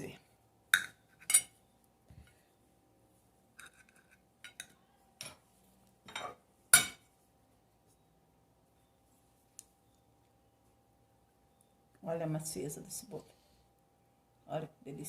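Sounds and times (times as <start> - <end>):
knife clinking on dishware: 6.1 - 7.0.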